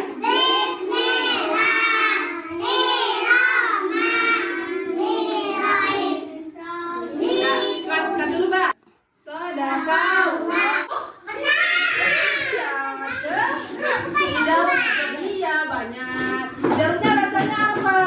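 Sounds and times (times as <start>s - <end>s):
children chanting a prayer: 0.0s - 8.5s, 9.7s - 15.4s.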